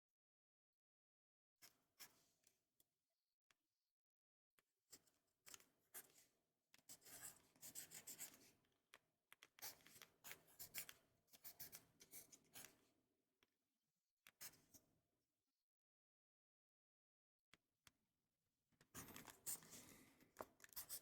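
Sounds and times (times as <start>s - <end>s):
pen writing on paper: 6.9s - 8.6s, 9.6s - 12.8s, 19.0s - 21.0s.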